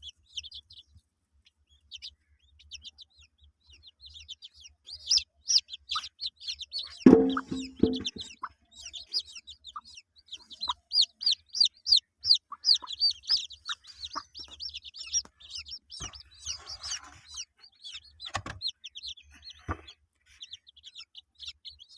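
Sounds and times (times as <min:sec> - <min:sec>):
chicks peeping: 0:00.0 - 0:21.9
hen clucking: 0:01.9 - 0:21.9
soft knocks: 0:07.1 - 0:08.3.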